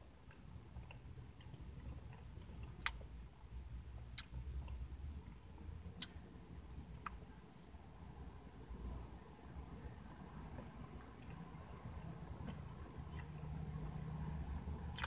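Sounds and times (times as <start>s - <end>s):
low steady rumble: 0.0s - 15.0s
wet mouth clicks: 2.6s - 3.0s, 4.1s - 4.4s, 6.0s - 6.2s.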